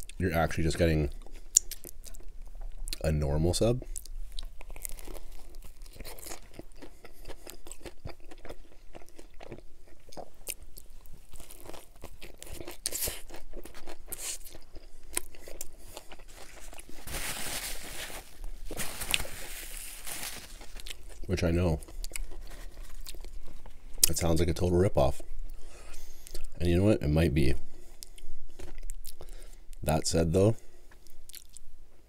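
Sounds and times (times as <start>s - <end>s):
crunchy chewing: 3.8s - 24.3s, 27.9s - 29.6s, 30.9s - 31.6s
paper rustling: 16.3s - 20.8s.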